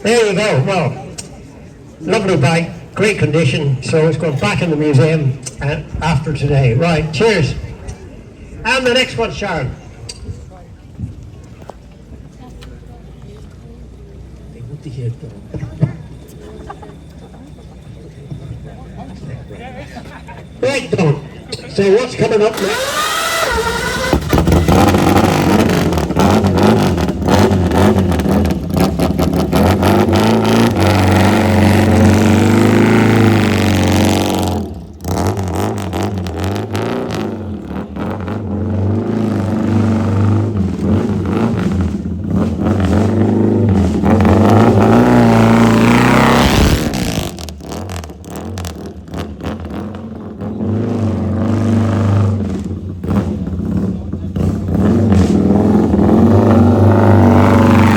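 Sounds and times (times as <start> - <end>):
motorcycle engine revving: 15.6 - 57.9.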